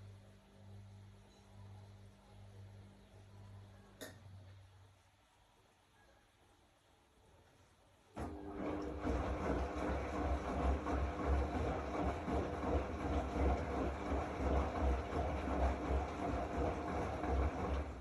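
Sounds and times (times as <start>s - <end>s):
washing machine motor hum: 8.2s - 18.0s.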